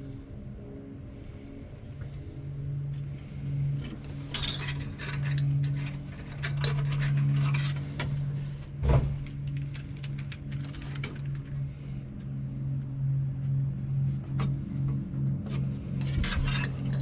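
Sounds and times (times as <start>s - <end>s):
steady low hum: 0.0s - 17.0s
light metallic clicks and scrapes: 3.0s - 12.3s, 13.4s - 17.0s.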